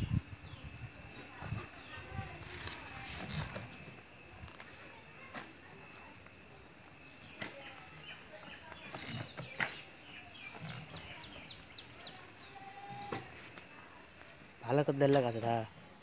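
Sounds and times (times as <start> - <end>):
birds chirping faintly: 0.0 - 16.0.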